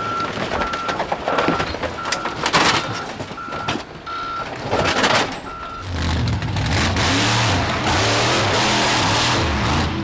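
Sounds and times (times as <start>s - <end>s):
vehicle reversing alarm beeps: 0.0s - 6.0s.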